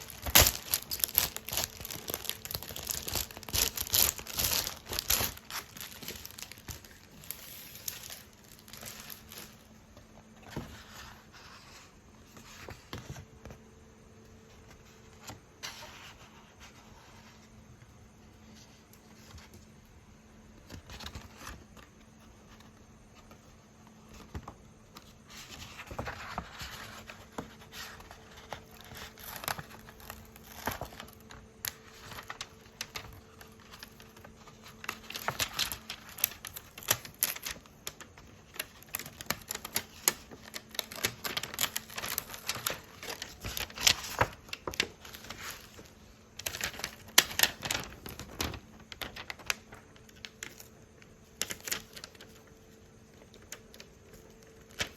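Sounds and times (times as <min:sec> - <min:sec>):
packaging crinkling: 0:00.0 - 0:09.9, 0:25.5 - 0:54.9.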